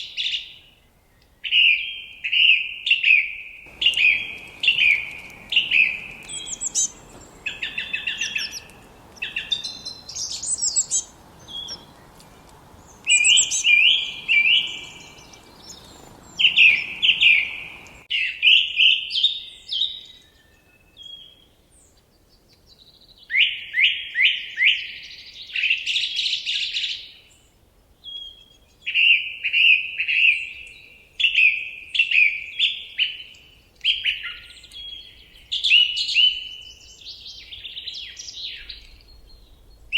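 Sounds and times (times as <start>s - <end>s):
songbirds singing trills: 0.1s - 23.7s, 24.3s - 39.9s
faint background hiss: 3.7s - 18.1s.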